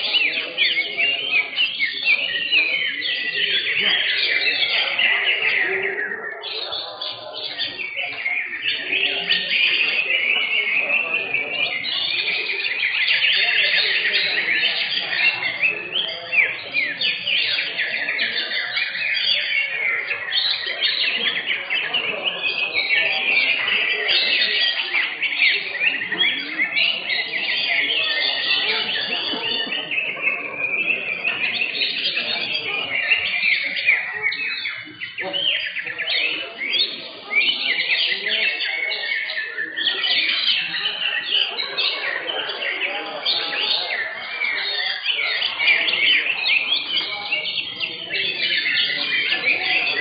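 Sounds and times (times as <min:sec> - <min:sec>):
birds chirping and whistling: 0:00.0 - 0:50.0
murmuring voices: 0:00.0 - 0:50.0.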